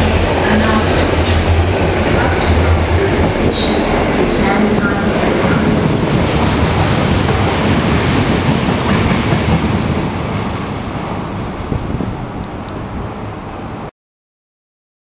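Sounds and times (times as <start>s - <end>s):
wheels clattering over rails: 0.0s - 10.7s
train wagons rumbling by: 0.0s - 13.9s.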